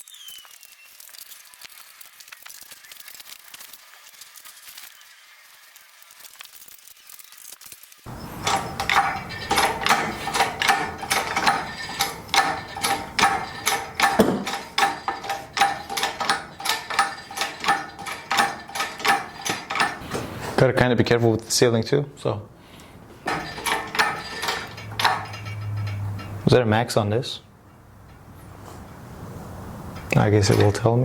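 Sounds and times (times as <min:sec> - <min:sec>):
ratchet clicking: 0:08.1 - 0:20.4, 0:22.8 - 0:26.4.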